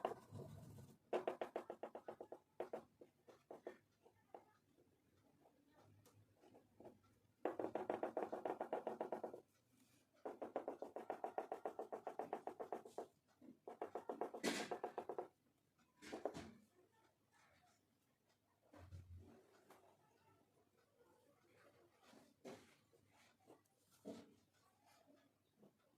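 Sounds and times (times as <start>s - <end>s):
oil pastel scribbling on paper: 0.0s - 4.6s, 6.4s - 15.3s.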